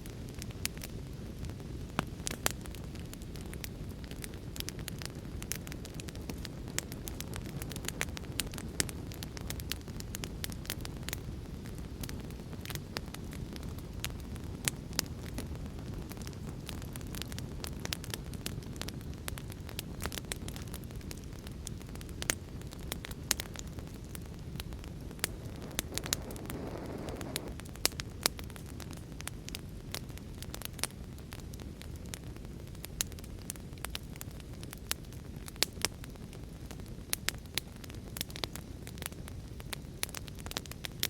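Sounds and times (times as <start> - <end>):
burning logs crackling and popping: 0.0 - 41.0
flames hissing: 19.8 - 29.7.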